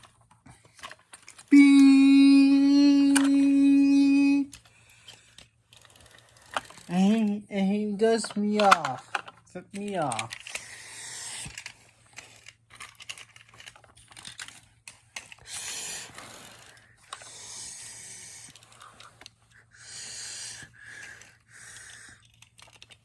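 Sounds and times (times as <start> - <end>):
breathy hissing bursts: 15.5 - 22.2.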